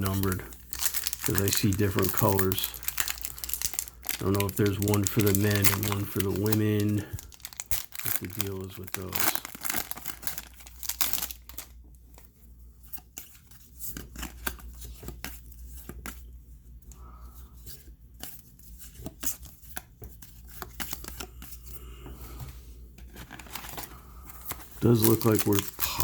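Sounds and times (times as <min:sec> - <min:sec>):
wrappers tearing: 0:00.0 - 0:11.8, 0:23.3 - 0:26.0.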